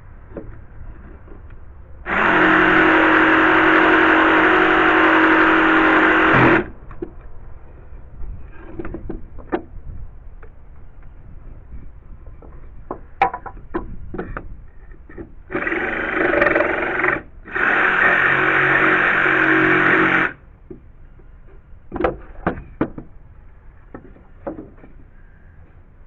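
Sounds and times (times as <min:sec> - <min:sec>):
jigsaw cutting wood: 0:02.1 - 0:06.7, 0:15.5 - 0:20.4
wood and tool handling knocks: 0:12.2 - 0:15.3, 0:21.9 - 0:23.2, 0:23.9 - 0:25.0.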